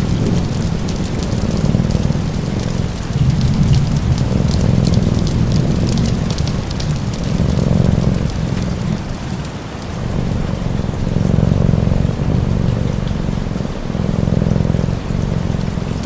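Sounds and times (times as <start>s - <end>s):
fire crackling and popping: 0.0s - 16.0s
steady rain: 0.0s - 16.0s.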